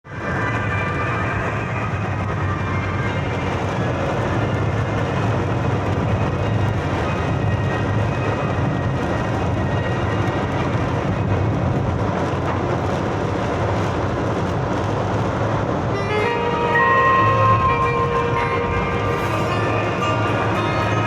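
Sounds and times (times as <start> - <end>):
loud rushing noise: 0.1 - 21.0
low rumble: 12.9 - 21.0
music with held tones: 15.9 - 21.0.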